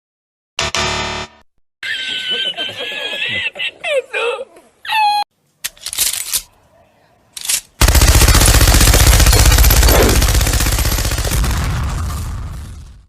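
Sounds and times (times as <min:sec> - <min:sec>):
rapid-fire rattle of strikes: 0:07.8 - 0:12.2.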